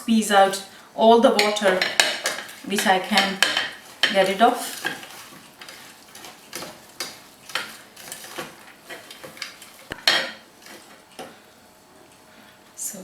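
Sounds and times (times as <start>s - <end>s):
hands squeezing grated radish: 3.8s - 10.0s.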